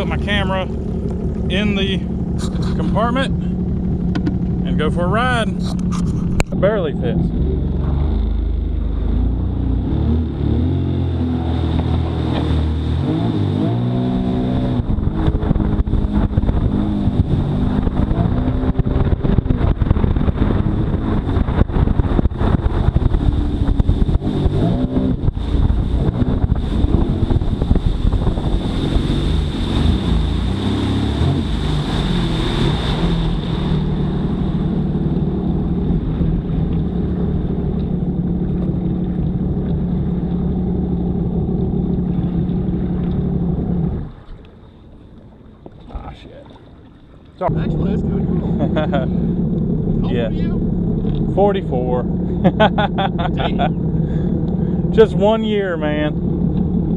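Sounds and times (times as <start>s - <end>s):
muffled jet ski engine revving: 0.0s - 56.9s.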